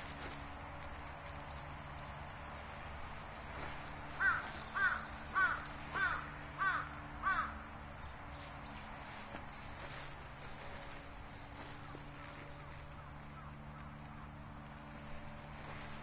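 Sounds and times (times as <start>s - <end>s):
bird calling: 3.6s - 7.6s.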